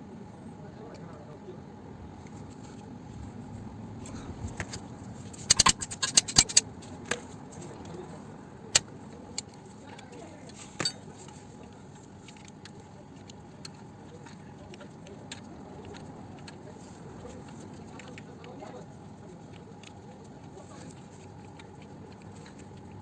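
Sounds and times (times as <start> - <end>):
metal tools clinking: 5.3 - 6.6, 10.5 - 11.0.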